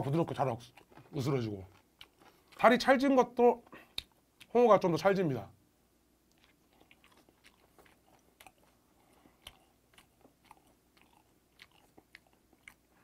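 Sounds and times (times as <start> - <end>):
chewing with small crunches: 0.0 - 4.6, 6.2 - 13.0.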